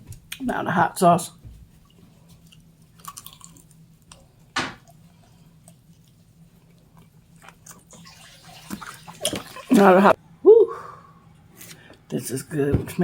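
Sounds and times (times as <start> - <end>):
faint steady hum: 0.0 - 13.0
wet eating clicks and smacks: 2.4 - 5.0.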